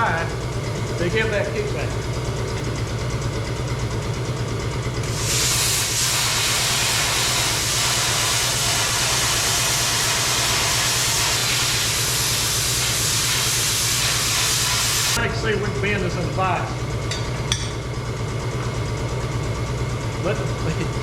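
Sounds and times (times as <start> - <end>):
low machine hum: 0.0 - 21.0
hiss of rushing gas: 5.1 - 15.2.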